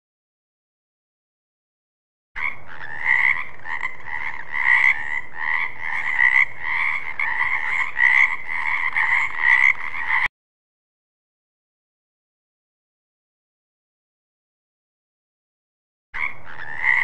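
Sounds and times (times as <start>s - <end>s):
frogs croaking: 2.4s - 10.3s, 16.2s - 17.0s.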